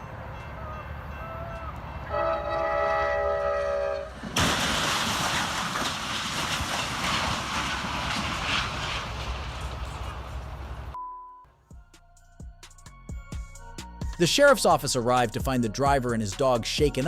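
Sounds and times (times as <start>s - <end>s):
train horn chord: 0.0s - 4.2s
train and wreckage clattering: 0.0s - 11.0s
loud crash: 4.1s - 10.8s.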